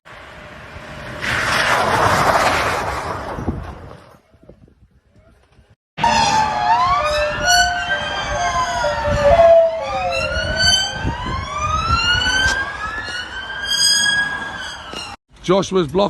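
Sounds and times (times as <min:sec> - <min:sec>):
traffic rumble: 0:00.1 - 0:16.0
emergency sirens wailing: 0:06.0 - 0:15.2.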